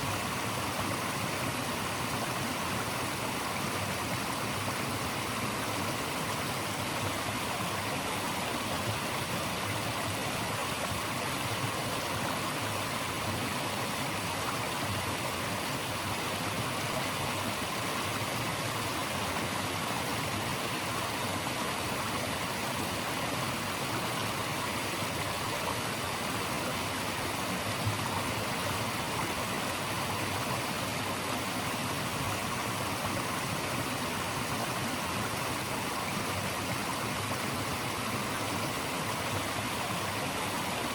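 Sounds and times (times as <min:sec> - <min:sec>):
stream of running water: 0:00.0 - 0:40.9.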